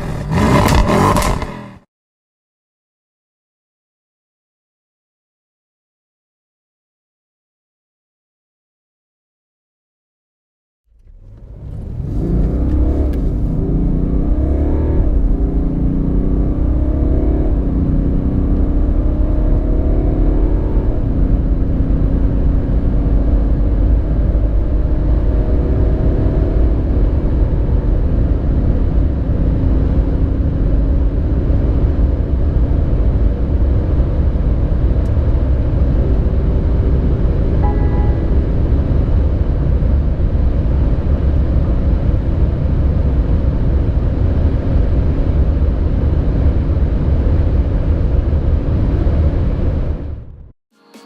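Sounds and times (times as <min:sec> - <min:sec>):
car accelerating hard: 0:00.0 - 0:01.8, 0:11.0 - 0:49.8.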